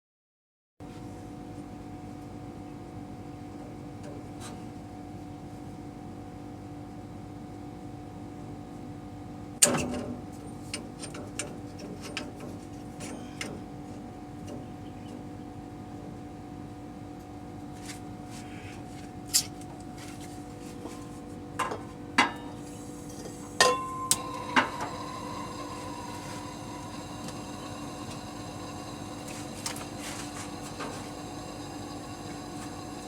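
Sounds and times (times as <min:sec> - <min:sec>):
compressor humming: 0:07.8 - 0:33.0
high steady whine: 0:21.6 - 0:33.0.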